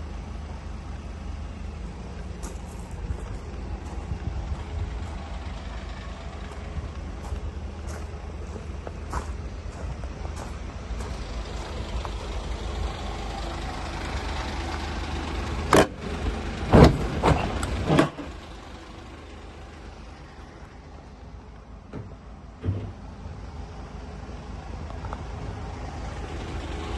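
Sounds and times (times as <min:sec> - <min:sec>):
van engine rumbling: 0:00.0 - 0:26.9
thump: 0:16.7 - 0:18.3, 0:21.9 - 0:23.0
sharp clunks: 0:21.9 - 0:23.0.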